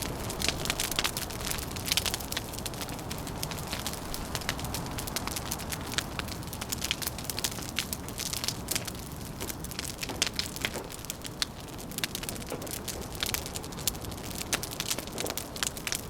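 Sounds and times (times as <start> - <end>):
wind rushing: 0.0 - 7.2
wood fire crackling and popping: 0.0 - 16.0.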